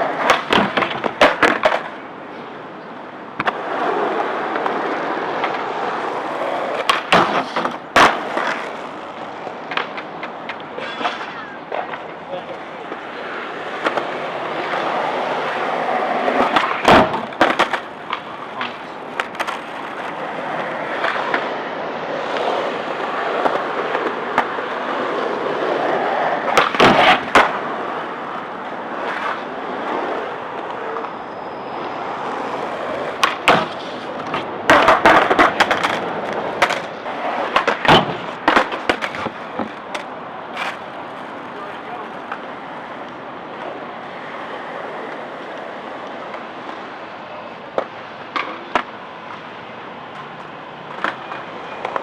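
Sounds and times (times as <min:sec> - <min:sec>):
skateboard clacks: 0:00.0 - 0:52.0
skateboard wheels rolling: 0:00.0 - 0:52.0.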